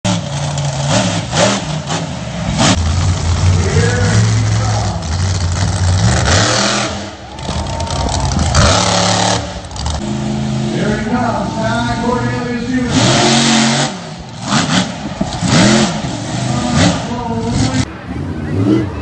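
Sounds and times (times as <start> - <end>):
truck engine revving: 0.1 - 19.0.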